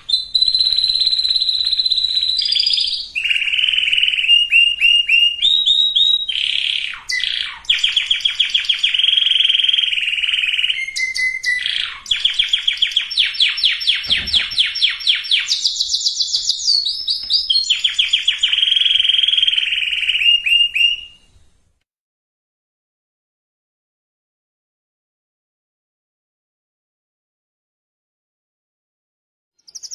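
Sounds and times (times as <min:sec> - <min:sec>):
canary singing rolling trills: 0:00.0 - 0:21.6, 0:29.6 - 0:29.9.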